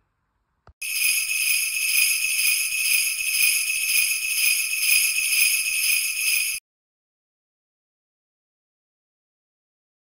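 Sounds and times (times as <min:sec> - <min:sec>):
bells jingling: 0:00.8 - 0:06.6.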